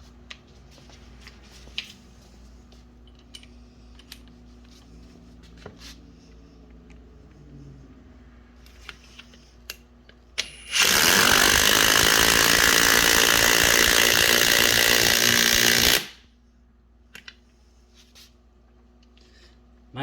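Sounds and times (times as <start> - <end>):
impact driver hammering screw: 10.4 - 16.2.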